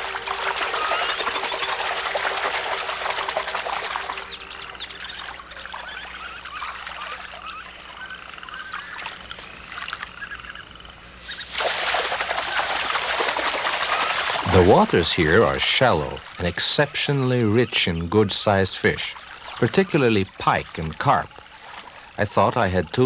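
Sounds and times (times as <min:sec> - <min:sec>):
frogs chirping: 0:00.0 - 0:23.0.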